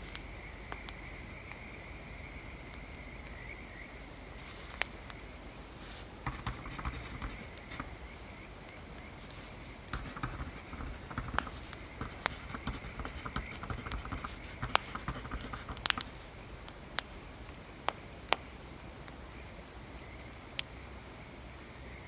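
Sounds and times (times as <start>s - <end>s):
wood fire crackling: 0.0s - 20.9s
pencil scratching on paper: 5.8s - 8.2s, 9.2s - 16.2s.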